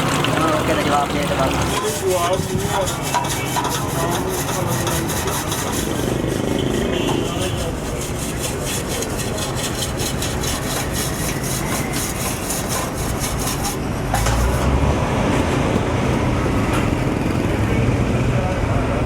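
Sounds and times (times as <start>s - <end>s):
hand tool rasping metal: 1.7s - 14.7s.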